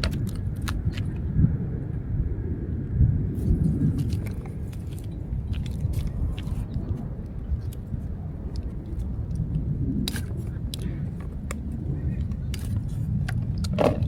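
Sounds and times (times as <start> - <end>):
wind rumble on microphone: 0.0 - 14.0
light clicks of foam plane parts: 10.1 - 14.0.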